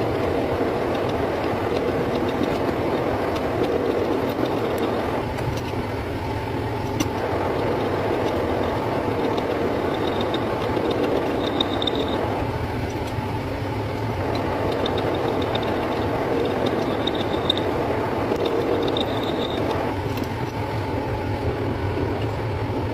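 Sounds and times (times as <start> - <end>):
metal lathe running: 0.0 - 21.5
faint high whine: 6.5 - 22.3.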